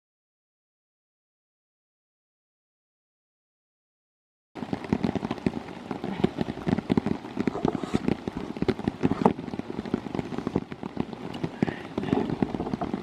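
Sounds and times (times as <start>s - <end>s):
hard rain patter: 4.6s - 13.0s.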